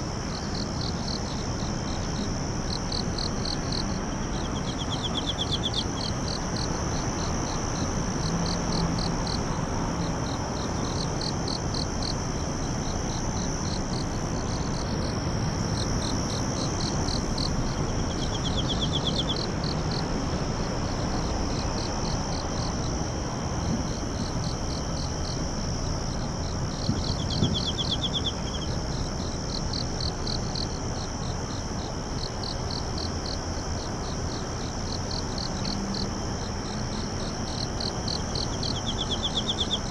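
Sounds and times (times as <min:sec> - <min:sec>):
background hiss: 0:00.0 - 0:39.9
insects chirping: 0:00.0 - 0:39.9.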